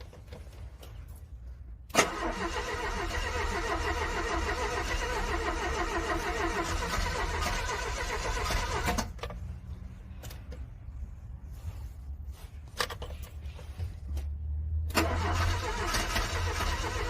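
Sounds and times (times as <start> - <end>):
starter motor cranking car engine: 1.9 - 9.2, 14.9 - 17.0.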